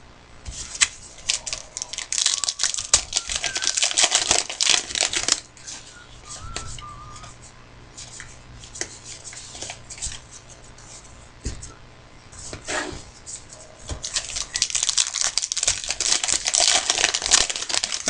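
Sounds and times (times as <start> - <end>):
foil wrapper crinkling: 0.6 - 6.0, 14.0 - 18.0.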